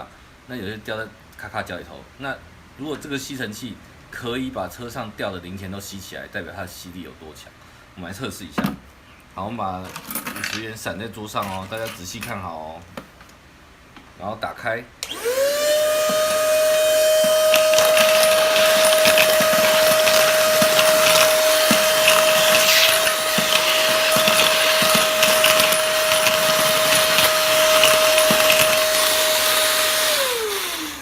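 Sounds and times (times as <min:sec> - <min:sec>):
vacuum motor whining: 0:15.0 - 0:31.0
coins rattling into nozzle: 0:17.2 - 0:29.6.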